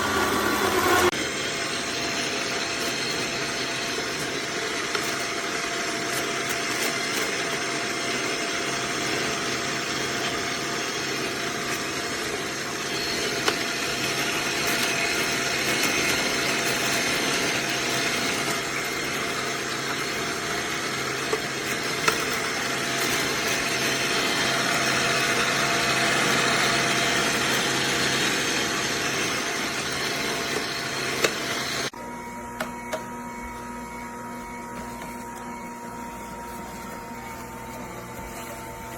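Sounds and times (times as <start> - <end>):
juicer grinding: 0.0 - 38.9
juicer clicks: 28.8 - 38.9.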